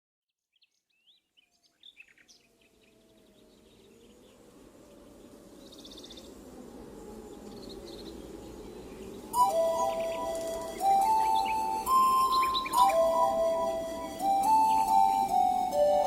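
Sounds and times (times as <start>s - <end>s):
birds chirping: 0.6s - 16.0s
ambient wash: 2.6s - 16.0s
bird trill: 7.4s - 16.0s.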